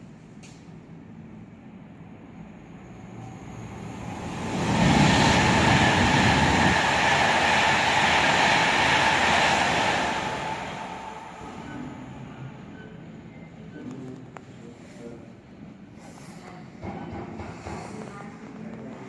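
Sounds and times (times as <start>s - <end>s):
heavy low train rumble: 1.2s - 13.6s
express train passing: 1.6s - 13.8s.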